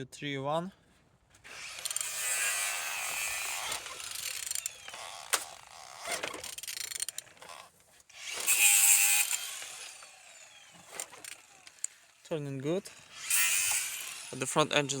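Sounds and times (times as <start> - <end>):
ratchet wrench rasping: 1.6 - 7.7, 8.4 - 12.0
ratchet clicks: 1.8 - 2.2, 3.6 - 7.4, 11.0 - 12.0.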